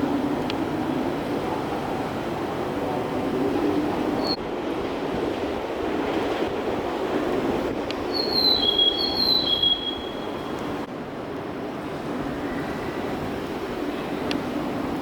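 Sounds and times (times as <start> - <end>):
train rumbling: 0.0 - 15.0
train wheels squealing: 4.2 - 4.4, 8.1 - 10.8.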